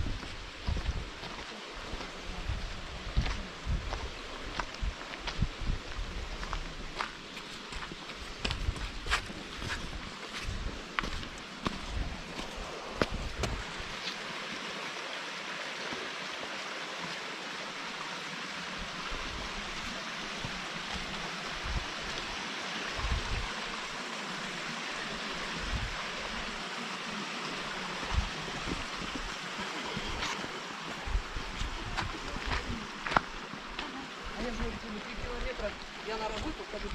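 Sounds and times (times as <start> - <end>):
stream rushing over rocks: 0.0 - 36.9
soft low thumps: 8.2 - 10.8.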